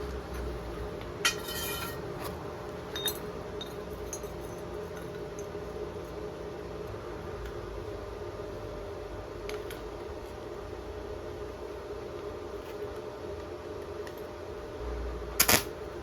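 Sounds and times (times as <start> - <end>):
steady hum: 0.0 - 16.0
hard object clinking and ringing: 1.2 - 2.1, 2.9 - 5.5.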